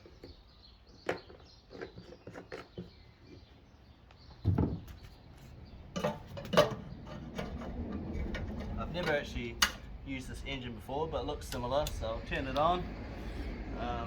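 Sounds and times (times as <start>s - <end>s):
dull thump: 4.4s - 5.0s.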